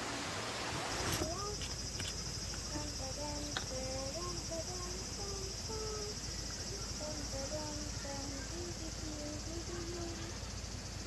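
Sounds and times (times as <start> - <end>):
crickets trilling: 0.4 - 11.0.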